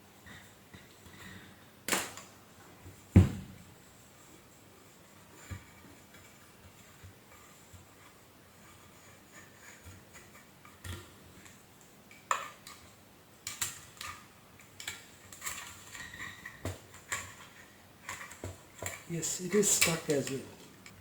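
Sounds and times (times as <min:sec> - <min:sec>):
knocks: 0:03.1 - 0:03.6.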